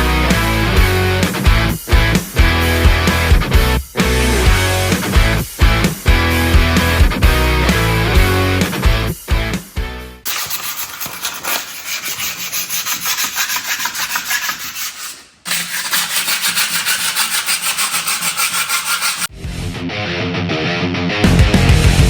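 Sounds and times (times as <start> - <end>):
sandpaper scrubbing back and forth: 10.3 - 19.3.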